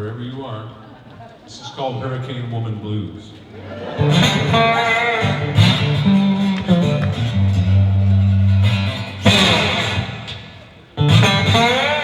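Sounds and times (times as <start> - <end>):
solo blues guitar: 3.2 - 12.0.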